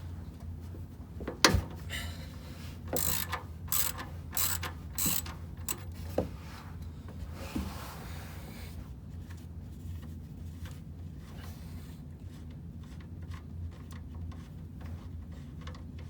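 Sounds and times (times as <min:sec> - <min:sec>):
ratchet wrench clicking: 0:03.0 - 0:06.0.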